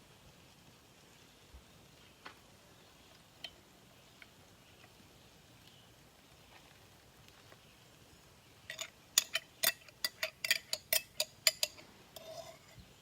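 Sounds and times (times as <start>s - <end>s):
metal utensil scraping skillet: 8.7s - 13.0s.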